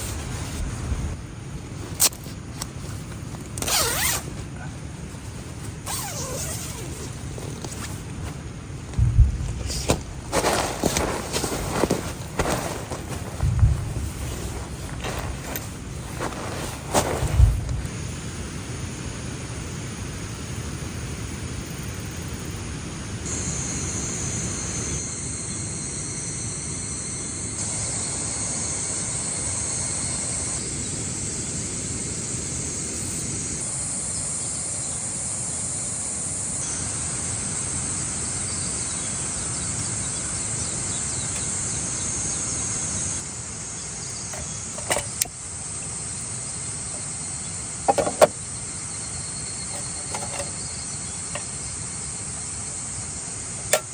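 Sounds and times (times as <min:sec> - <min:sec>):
insects droning: 0:00.0 - 0:53.9
low rumble: 0:08.9 - 0:10.4, 0:13.4 - 0:15.9.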